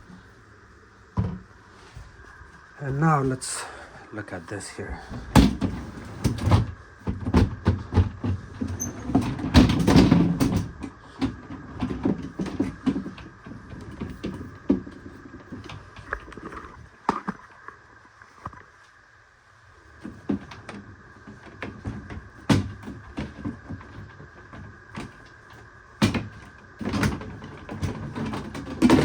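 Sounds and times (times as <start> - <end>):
plastic baskets knocking and rattling: 5.4 - 16.4, 20.0 - 25.2, 26.0 - 29.0.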